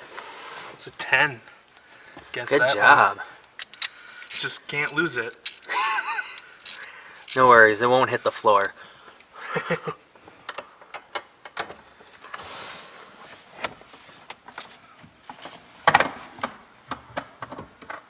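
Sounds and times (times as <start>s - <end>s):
hand tools clicking and knocking: 3.5s - 7.5s.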